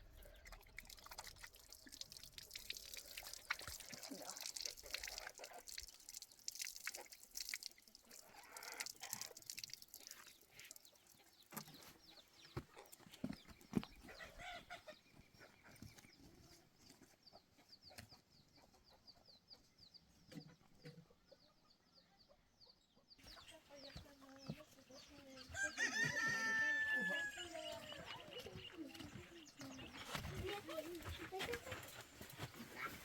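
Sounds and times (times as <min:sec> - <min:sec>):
chickens clucking: 0:10.5 - 0:33.0.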